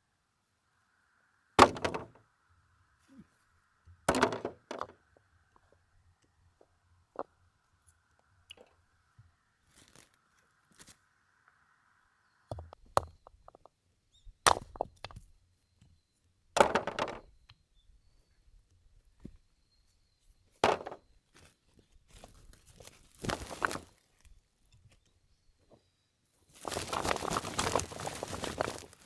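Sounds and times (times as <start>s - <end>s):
axe chopping firewood: 1.6s - 2.1s, 14.5s - 15.0s
wood pieces knocking: 1.6s - 2.2s, 4.0s - 5.2s, 16.6s - 17.3s, 20.6s - 21.0s, 23.1s - 23.9s, 26.6s - 29.0s.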